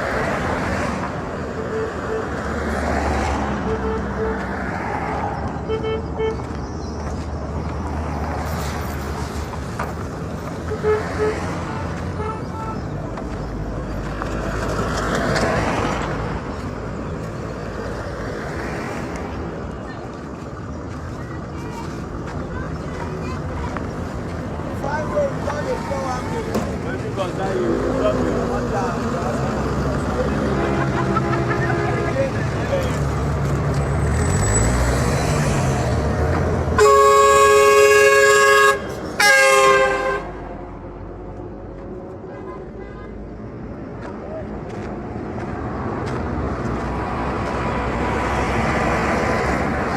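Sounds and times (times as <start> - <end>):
vehicle passing close by: 0.0 - 21.1, 21.8 - 42.0, 43.4 - 49.9
low traffic rumble: 0.0 - 49.9
vehicle horn blasts: 1.5 - 2.4, 3.6 - 4.4, 5.6 - 6.5, 10.7 - 12.9, 30.5 - 32.3, 36.8 - 40.4.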